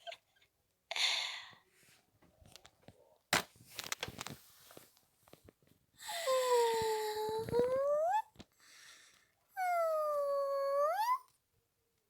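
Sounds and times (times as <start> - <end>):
breathy sigh: 6.0 - 7.6.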